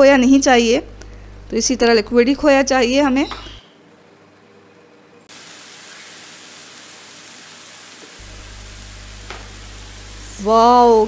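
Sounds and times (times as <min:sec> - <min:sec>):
food sizzling in oil: 0:05.3 - 0:11.0.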